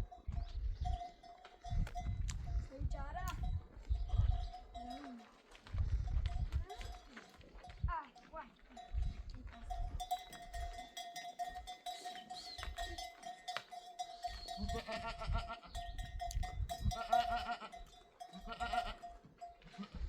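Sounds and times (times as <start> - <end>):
livestock bells ringing: 0.0 - 20.0
animals bleating: 14.0 - 15.9, 16.9 - 20.0.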